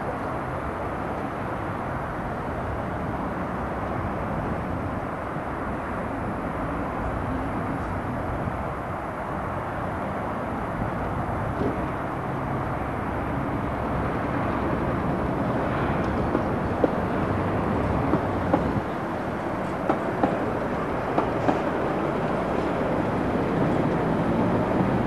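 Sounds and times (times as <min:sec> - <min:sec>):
train rumbling on track: 0:00.0 - 0:25.0
tram wheels clicking over rail joints: 0:13.9 - 0:25.0.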